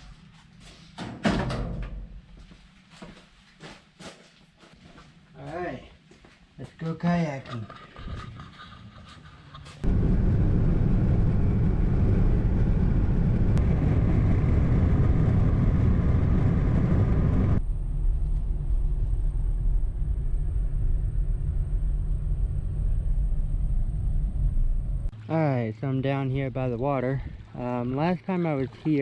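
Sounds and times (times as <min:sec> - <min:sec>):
car road and engine rumble: 0:09.3 - 0:25.3.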